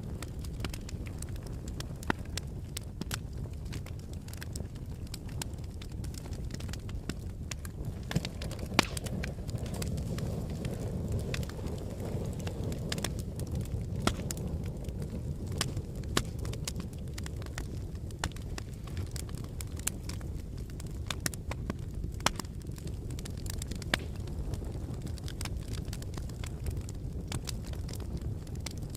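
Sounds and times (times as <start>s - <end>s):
fire crackling and popping: 0.0s - 28.9s
fire flames rumbling: 0.0s - 28.9s.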